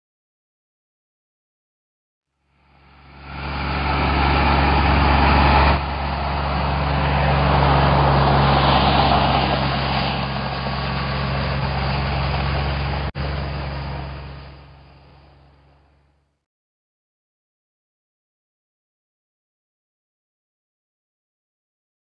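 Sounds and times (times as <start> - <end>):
tractor engine running: 2.5 - 16.2.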